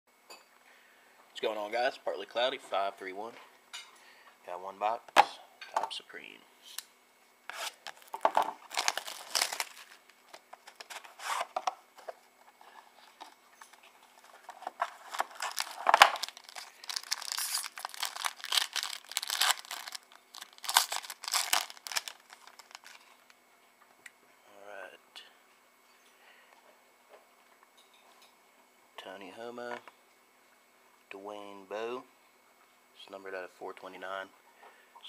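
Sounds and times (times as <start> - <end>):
wrapping being torn and crinkled: 7.5 - 11.5, 14.1 - 23.3.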